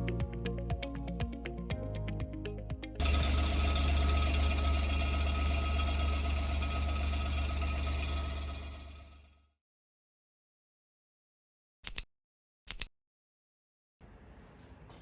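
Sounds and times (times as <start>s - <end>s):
car engine idling: 3.0s - 9.2s.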